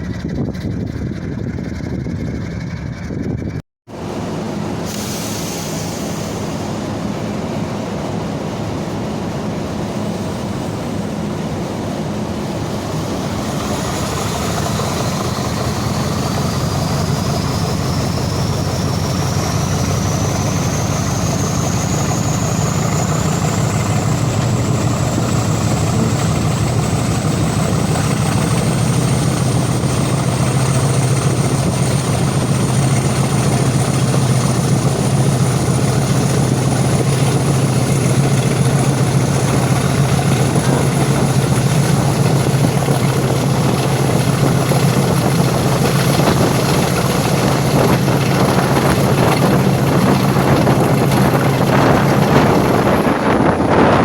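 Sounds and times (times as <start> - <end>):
diesel locomotive engine running: 0.0 - 54.0
high whine rising in pitch: 13.1 - 54.0.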